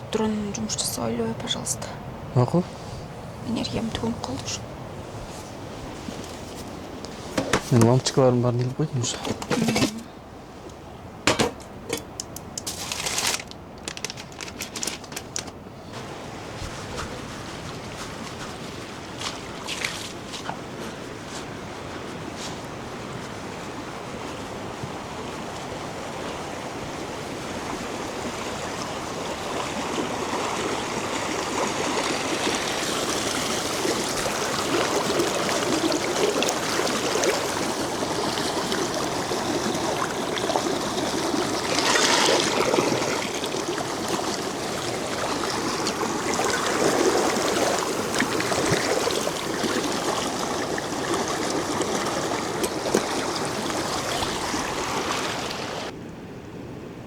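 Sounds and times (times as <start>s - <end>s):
mountain stream rushing: 15.9s - 56.0s.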